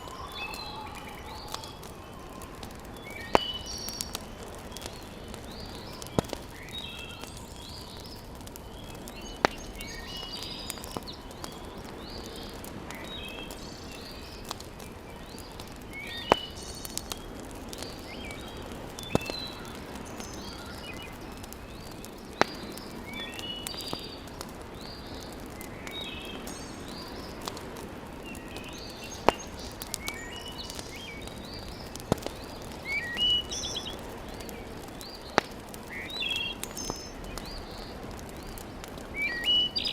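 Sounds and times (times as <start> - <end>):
birds chirping: 0.0 - 39.9
fire popping: 0.0 - 39.9
wood fire hissing: 0.0 - 39.9.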